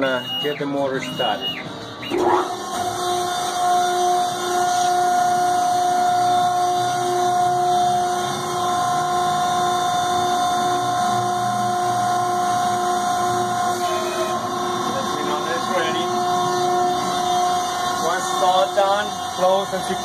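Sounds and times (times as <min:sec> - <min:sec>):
electric motor whining: 0:02.0 - 0:11.9.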